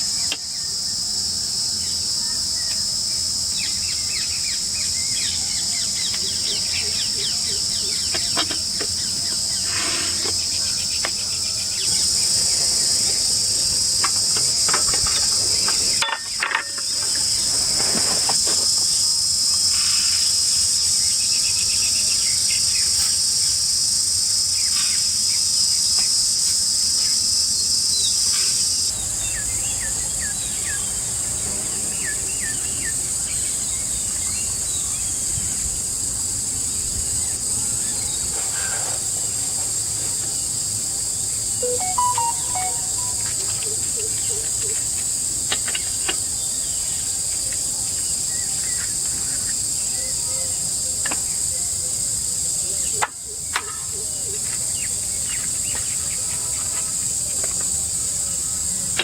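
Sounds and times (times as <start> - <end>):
short bird chirps: 41.6 - 43.5.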